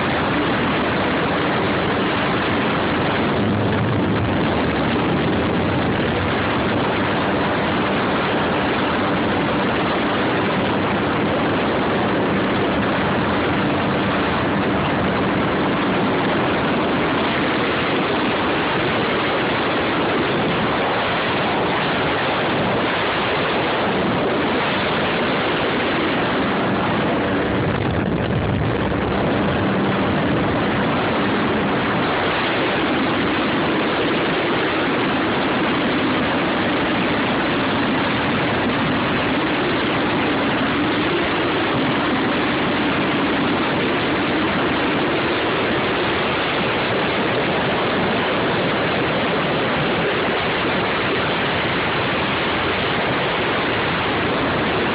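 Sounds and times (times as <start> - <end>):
jet ski engine running: 0.0 - 54.9
rushing water: 0.0 - 54.9.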